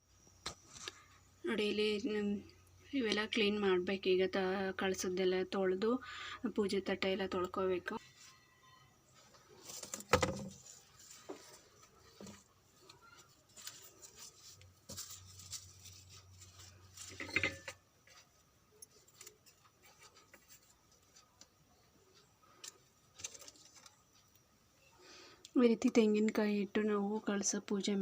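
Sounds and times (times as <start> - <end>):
objects clattering: 9.6 - 18.3.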